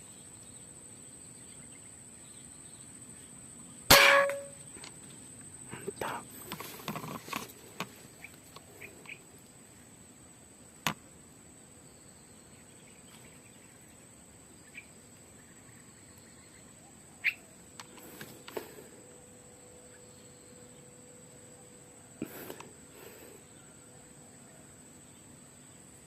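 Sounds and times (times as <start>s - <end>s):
bird chirps: 12.0s - 18.2s.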